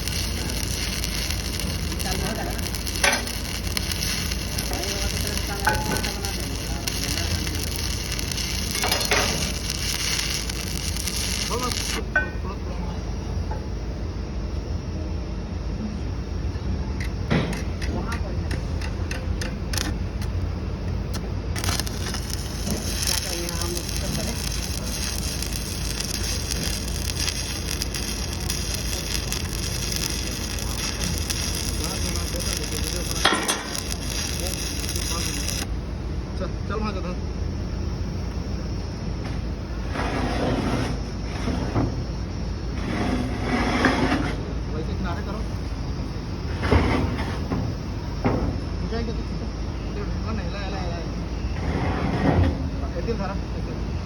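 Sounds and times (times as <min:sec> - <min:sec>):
cutting torch hissing: 0:00.0 - 0:12.1, 0:21.5 - 0:35.7, 0:39.8 - 0:44.4
crackling of cut steel: 0:00.0 - 0:12.3, 0:21.1 - 0:35.7.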